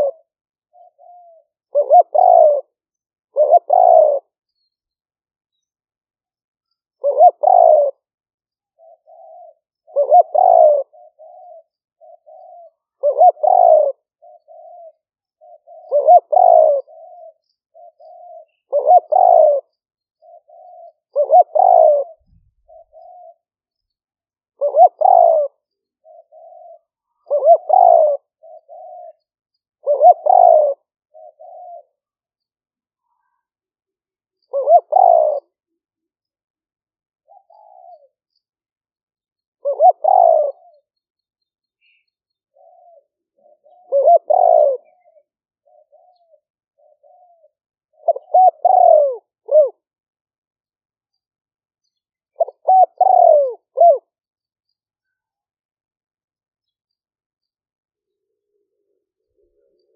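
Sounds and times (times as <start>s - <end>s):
dove cooing: 0.0s - 4.4s, 7.0s - 23.6s, 24.5s - 32.2s, 34.4s - 35.8s, 37.2s - 38.5s, 39.5s - 41.0s, 41.8s - 50.0s, 51.8s - 54.2s, 58.1s - 59.9s.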